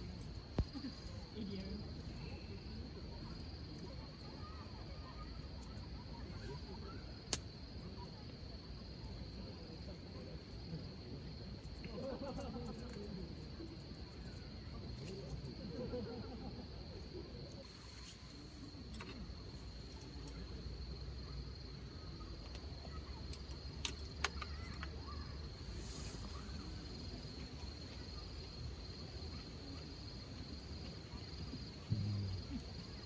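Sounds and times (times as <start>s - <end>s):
insects trilling: 11.3s - 33.0s
distant voices murmuring: 31.6s - 33.0s.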